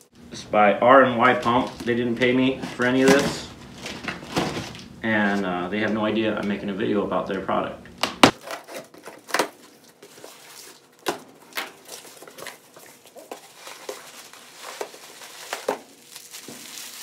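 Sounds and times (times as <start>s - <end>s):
packaging taps and rustles: 8.3s - 17.0s.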